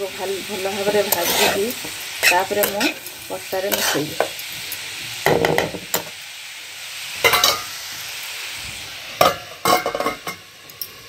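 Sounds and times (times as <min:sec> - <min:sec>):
vegetables sizzling in a pan: 0:00.0 - 0:11.0
steel spatula scraping pan: 0:00.8 - 0:04.4
metal lid clattering on pan: 0:07.2 - 0:07.6, 0:09.2 - 0:10.4.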